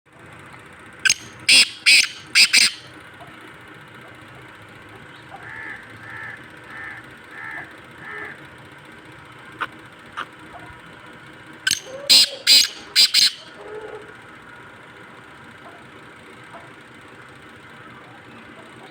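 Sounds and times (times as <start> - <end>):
fainter bird call: 1.0 - 2.9, 11.7 - 14.2
bird calling harsh notes: 1.0 - 3.0, 11.7 - 13.7.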